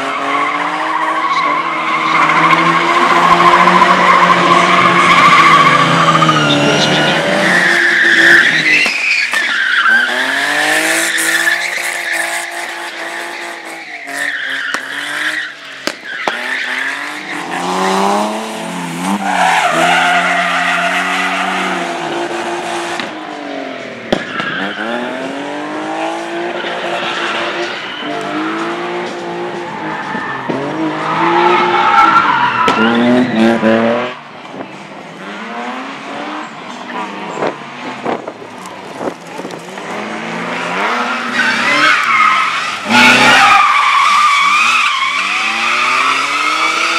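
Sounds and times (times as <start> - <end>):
car engine revving: 0.0 - 46.9
tyres squealing: 0.4 - 18.2, 40.8 - 46.9.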